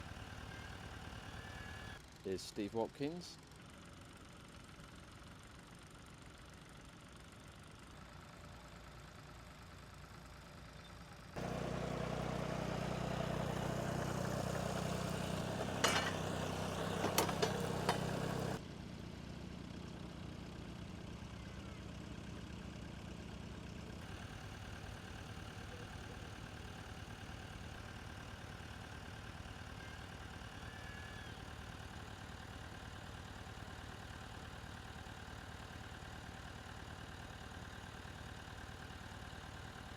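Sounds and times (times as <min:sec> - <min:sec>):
tractor engine running: 0:11.3 - 0:18.6, 0:21.7 - 0:39.9.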